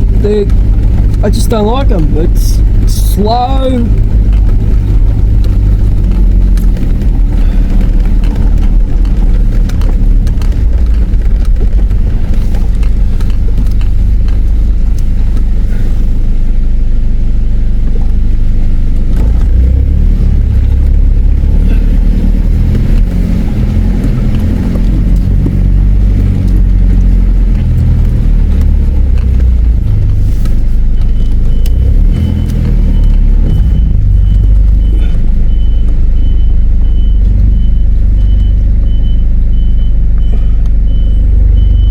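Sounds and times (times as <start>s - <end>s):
vehicle engine and road rumble: 0.0s - 41.9s
high-pitched electronic beep: 30.9s - 41.9s.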